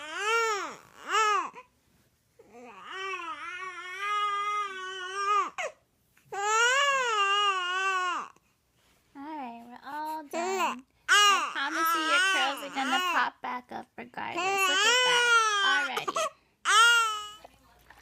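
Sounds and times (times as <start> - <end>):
baby crying: 0.0 - 1.7, 2.4 - 8.4, 10.4 - 13.2, 14.4 - 17.4.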